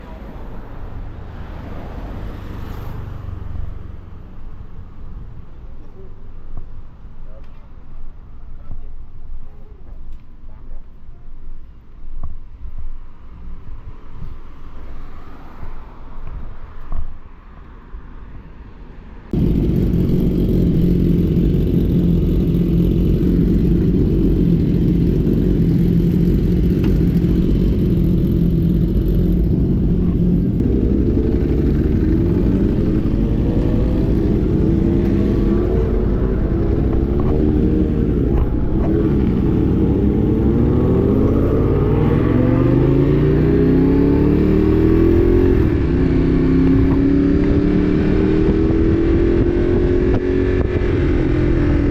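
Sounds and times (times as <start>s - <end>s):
wind rumble on microphone: 19.3s - 43.7s, 44.8s - 51.9s
motorcycle engine revving: 19.4s - 51.9s.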